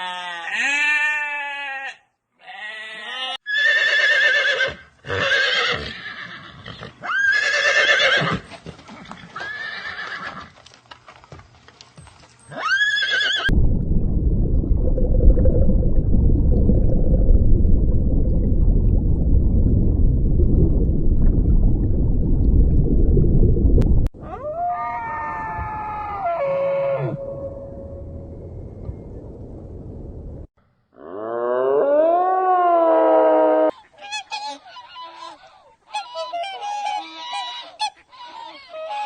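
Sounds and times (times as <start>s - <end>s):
horse whinnying: 3.0s - 8.5s, 9.4s - 10.5s, 12.5s - 13.5s
loud low even noise: 13.5s - 24.1s
falling-pitch call: 26.7s - 29.2s.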